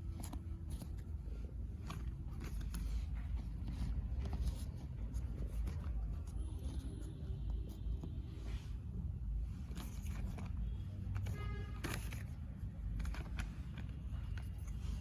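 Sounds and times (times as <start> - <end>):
puzzle pieces scraping and clicking: 11.2 - 15.0.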